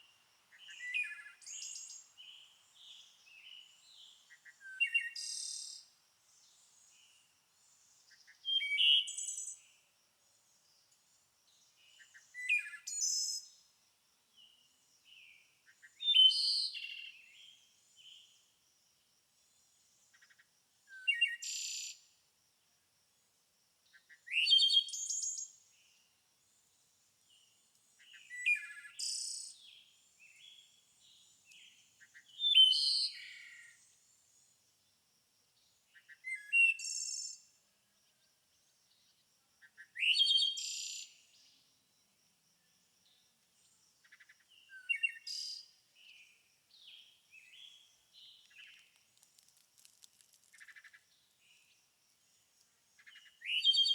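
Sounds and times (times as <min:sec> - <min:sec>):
songbird whistling phrases: 0:53.4 - 0:53.9.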